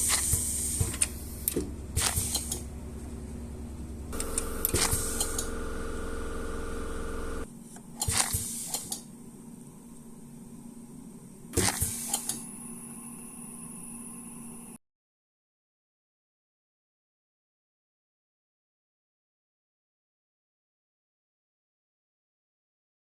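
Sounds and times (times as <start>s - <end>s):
small electric motor humming: 4.2s - 7.5s.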